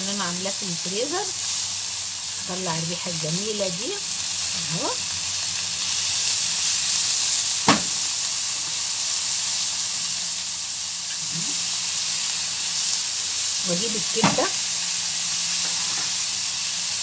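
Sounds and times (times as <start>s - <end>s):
onions sizzling in hot oil: 0.0s - 17.0s
sharp tap: 7.7s - 8.0s.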